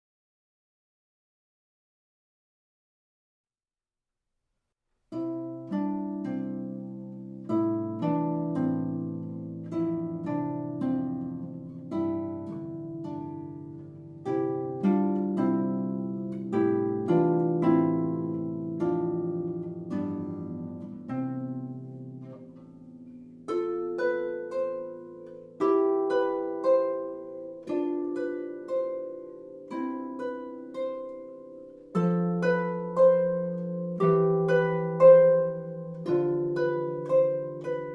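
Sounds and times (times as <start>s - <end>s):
harp plucked notes: 5.2s - 37.9s.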